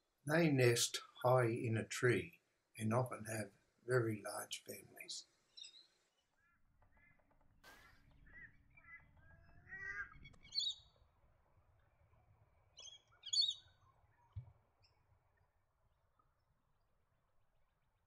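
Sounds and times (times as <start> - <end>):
birds chirping: 0.3 - 11.3, 12.6 - 15.5.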